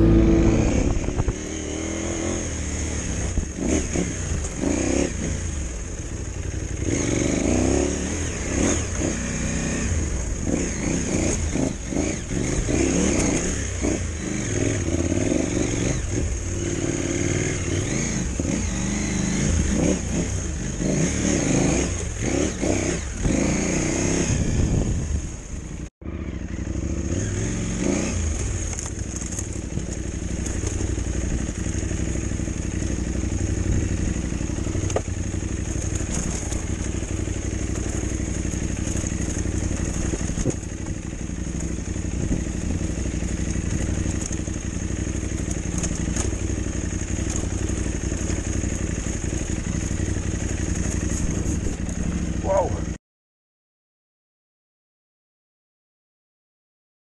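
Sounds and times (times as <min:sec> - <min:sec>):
motorcycle engine revving: 0:00.0 - 0:53.0
motorcycle knocking over bumps: 0:28.2 - 0:52.4.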